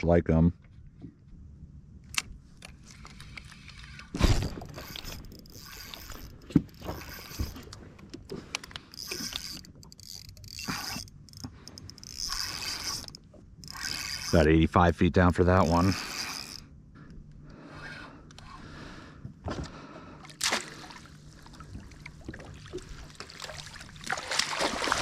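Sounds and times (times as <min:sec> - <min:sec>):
fishing reel clicks and rattles: 0:02.1 - 0:14.6, 0:15.6 - 0:16.6.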